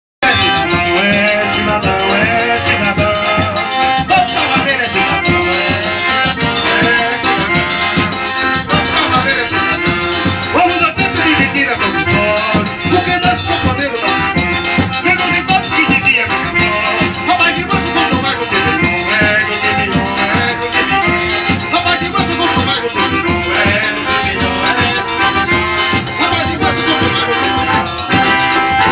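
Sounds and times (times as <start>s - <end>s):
steady percussive beat: 0.2s - 3.5s
live band instrumental: 0.2s - 28.9s.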